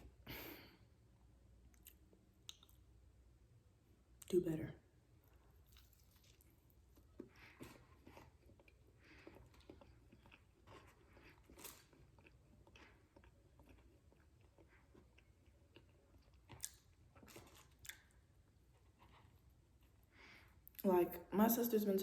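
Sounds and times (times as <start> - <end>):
person chewing food: 1.6 - 3.0, 5.2 - 20.8.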